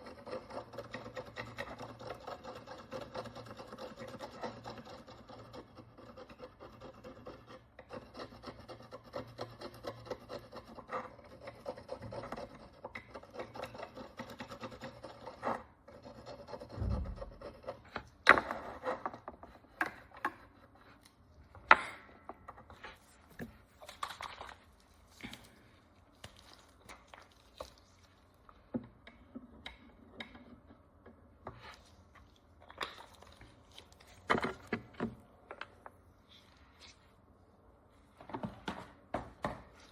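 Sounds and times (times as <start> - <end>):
tool scratching a coin: 0.0 - 20.9.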